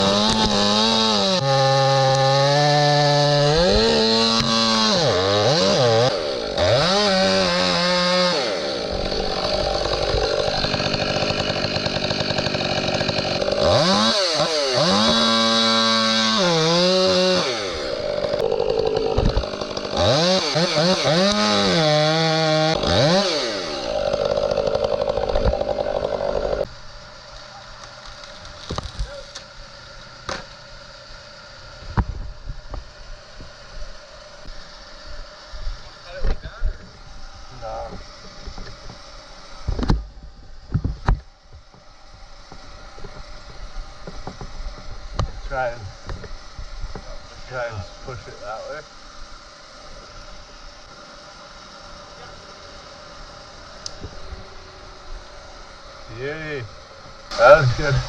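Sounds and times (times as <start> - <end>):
chainsaw engine revving: 0.0 - 26.7, 57.3 - 58.0.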